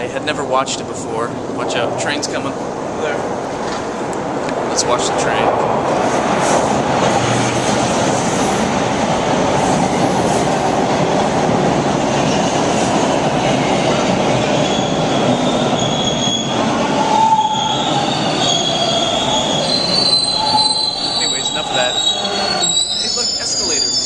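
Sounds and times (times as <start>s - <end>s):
subway train running: 0.0s - 24.0s
steel wheels squealing: 14.5s - 24.0s.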